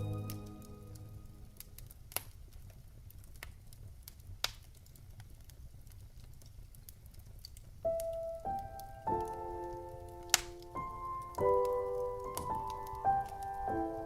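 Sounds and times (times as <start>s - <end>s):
piano notes: 0.0s - 1.9s, 7.8s - 14.0s
wood fire crackling: 0.0s - 14.0s.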